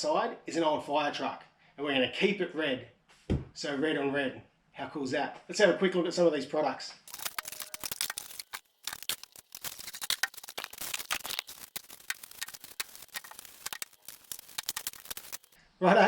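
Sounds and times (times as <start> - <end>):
packaging crackling and rustling: 7.1 - 15.6.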